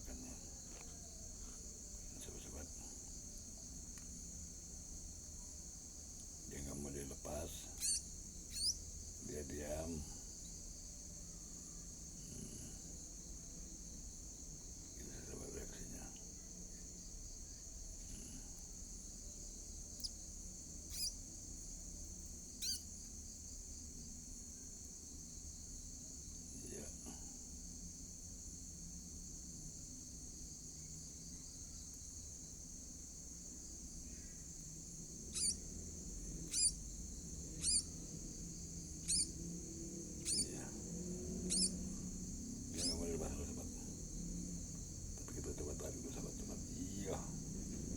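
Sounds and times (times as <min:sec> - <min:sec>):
cricket chorus: 0:00.0 - 0:47.9
nestling birds chirping: 0:06.4 - 0:10.6, 0:20.8 - 0:21.3, 0:22.4 - 0:22.9, 0:35.1 - 0:44.1
high-pitched hiss: 0:40.2 - 0:40.9.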